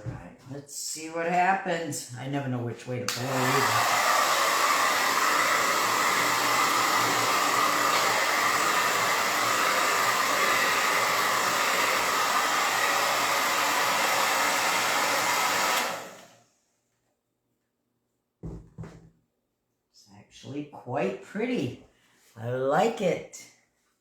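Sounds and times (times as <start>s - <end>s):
blow dryer running: 3.1s - 16.4s.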